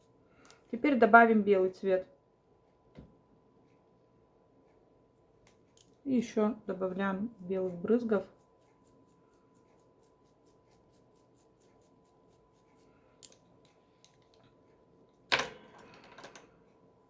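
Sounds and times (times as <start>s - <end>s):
toothbrush bristles flicking paint: 5.5s - 14.3s.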